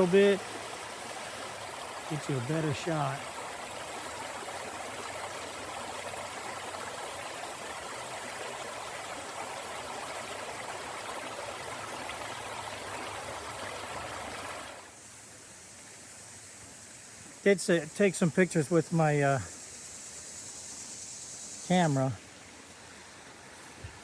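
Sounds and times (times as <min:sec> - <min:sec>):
waterfall rushing and splashing: 0:00.0 - 0:14.8.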